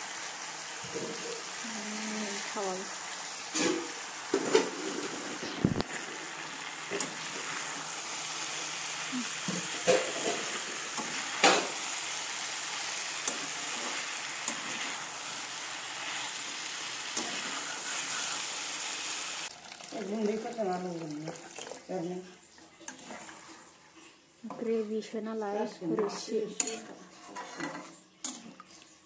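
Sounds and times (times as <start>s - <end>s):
food sizzling in a wok: 0.0s - 29.0s
spatula scraping a pan: 3.5s - 5.6s, 9.4s - 19.0s, 26.0s - 28.4s.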